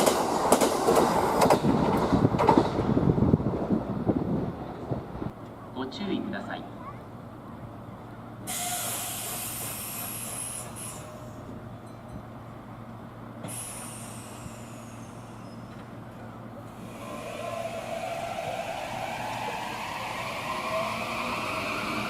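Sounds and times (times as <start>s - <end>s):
compressed air hissing: 8.5s - 11.3s, 13.4s - 15.7s
train motors whining: 13.4s - 22.0s.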